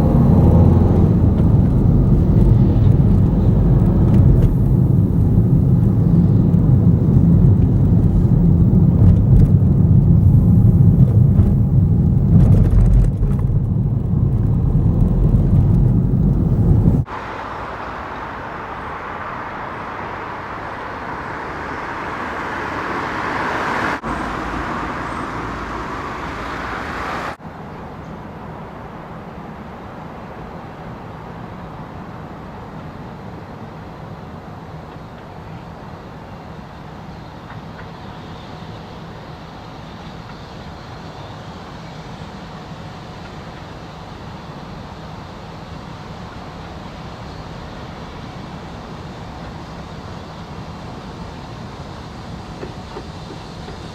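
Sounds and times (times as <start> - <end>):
engine low rumble: 0.0 - 27.4
engine running noise: 0.0 - 27.4.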